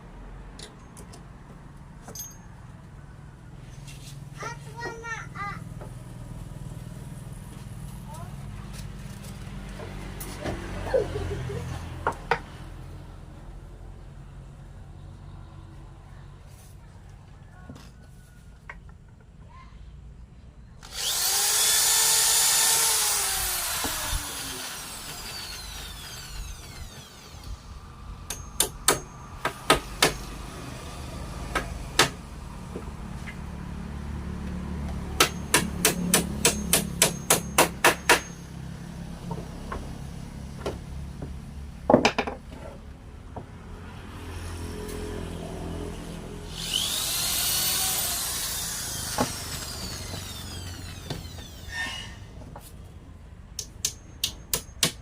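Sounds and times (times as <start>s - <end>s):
power tool motor spinning: 20.8s - 28.0s, 46.4s - 52.2s.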